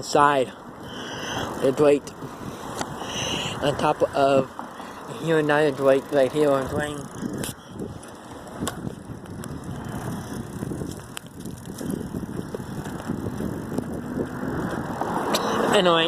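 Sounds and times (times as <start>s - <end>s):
bicycle tyres rushing: 0.0s - 16.0s
bicycle clicks and rattles: 3.7s - 16.0s.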